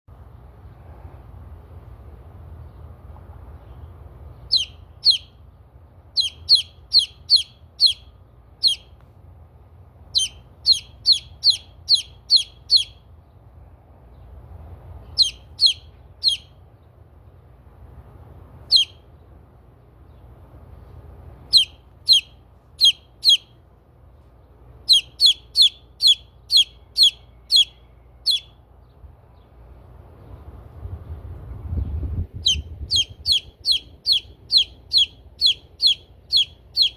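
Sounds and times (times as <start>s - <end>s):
chick peeping: 4.5s - 5.3s, 6.2s - 8.9s, 10.1s - 13.0s, 15.1s - 16.5s, 18.7s - 19.0s, 21.5s - 23.5s, 24.9s - 28.5s, 31.8s - 36.9s.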